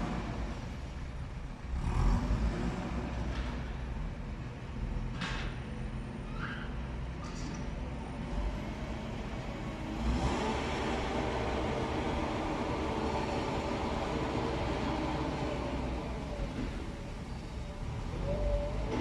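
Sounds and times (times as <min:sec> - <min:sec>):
heavy vehicle engine revving: 0:00.0 - 0:04.0, 0:08.1 - 0:19.0.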